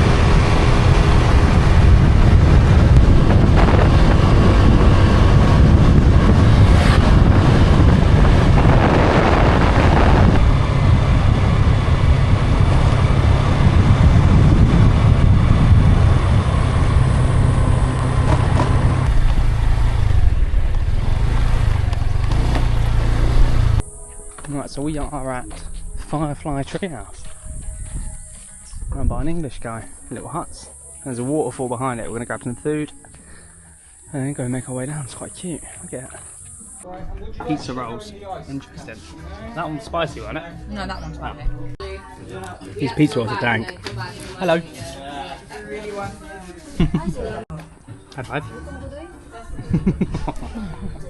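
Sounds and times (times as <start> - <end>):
wind buffeting microphone: 0.0 - 23.8, 25.9 - 30.0
low engine drone: 0.0 - 36.8.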